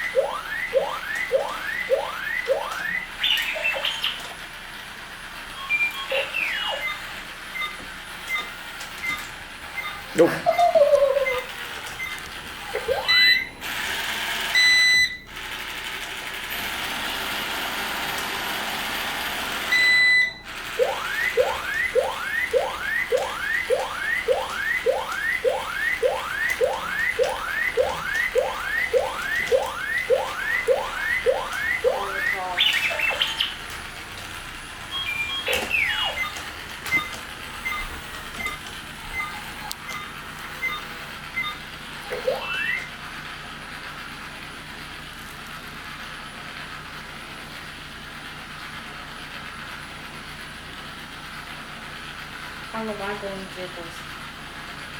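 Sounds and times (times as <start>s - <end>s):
rising electronic whistles: 0.0s - 4.2s, 20.8s - 33.6s, 34.9s - 37.8s, 41.4s - 42.9s
electronic chirps: 0.0s - 4.3s, 5.6s - 9.2s, 9.8s - 13.5s, 19.8s - 33.7s, 34.9s - 42.9s
electronic robot beeps: 0.0s - 4.3s, 5.6s - 13.5s, 19.8s - 33.7s, 34.9s - 42.9s
robot whirring: 20.6s - 41.0s.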